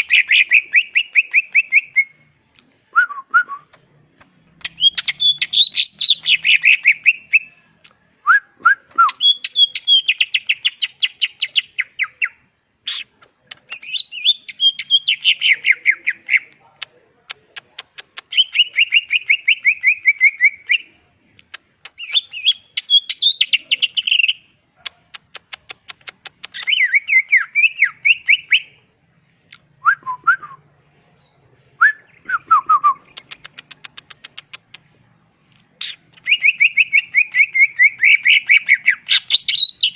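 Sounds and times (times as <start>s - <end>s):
bird whistling and chattering: 0.0s - 2.2s, 4.6s - 7.5s, 8.8s - 16.5s, 17.3s - 20.9s, 21.5s - 28.8s, 31.8s - 34.8s, 35.8s - 39.9s
downward-slurred bird whistles: 0.0s - 2.2s, 26.5s - 28.8s, 35.8s - 39.9s.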